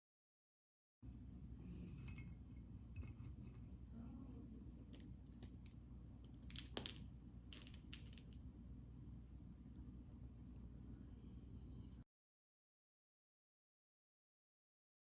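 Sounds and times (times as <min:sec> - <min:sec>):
low room hum: 0:01.0 - 0:12.1.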